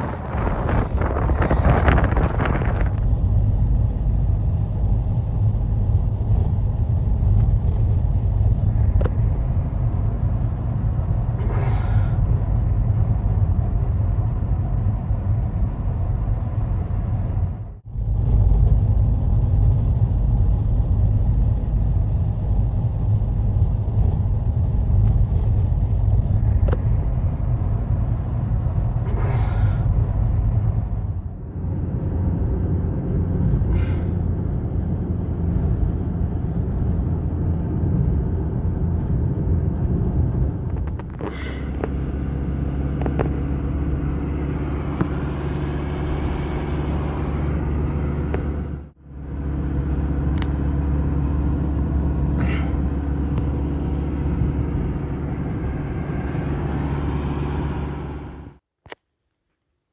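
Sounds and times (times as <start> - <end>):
hissing wind gusts: 0.0 - 3.1
snowstorm wind rumbling: 0.0 - 58.5.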